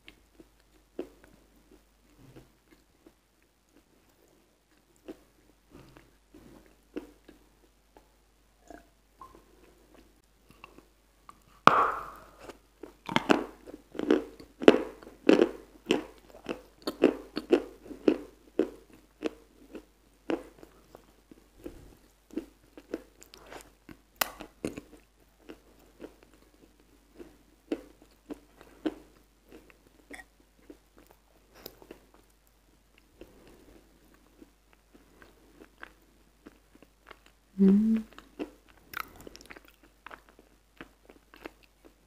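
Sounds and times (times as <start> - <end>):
wet crunching chews: 12.8 - 32.4, 38.1 - 42.0.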